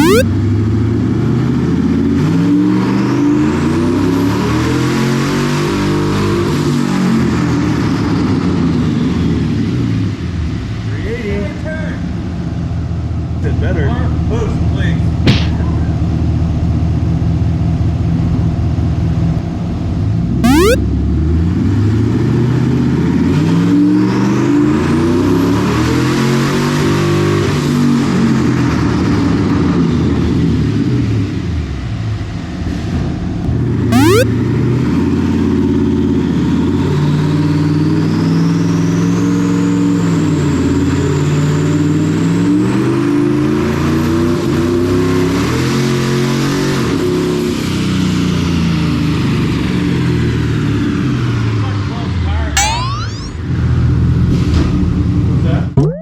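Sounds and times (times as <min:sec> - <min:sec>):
turbo whistle: 0:00.0 - 0:00.2, 0:20.4 - 0:20.8, 0:34.0 - 0:34.3, 0:52.6 - 0:53.4.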